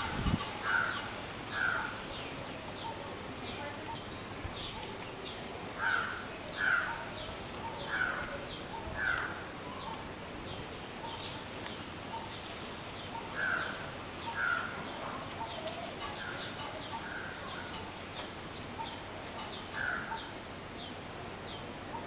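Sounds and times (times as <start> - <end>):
louder bird calling: 0.0 - 3.0, 5.8 - 10.0, 12.1 - 18.0, 18.6 - 21.0.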